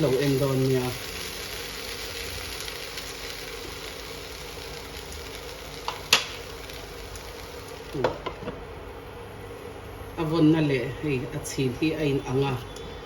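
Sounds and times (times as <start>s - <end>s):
food sizzling in oil: 0.0s - 8.8s.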